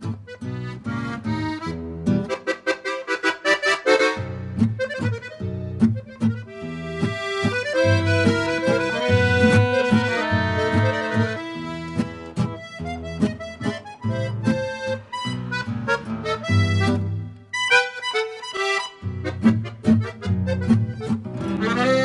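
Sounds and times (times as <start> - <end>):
accordion music: 0.0 - 22.0.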